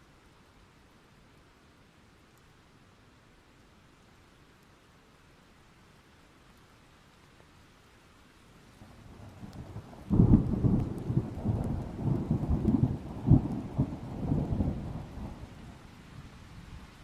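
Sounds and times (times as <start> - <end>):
light rain hissing: 0.0 - 17.0
thunderclap rumbling: 9.1 - 15.8.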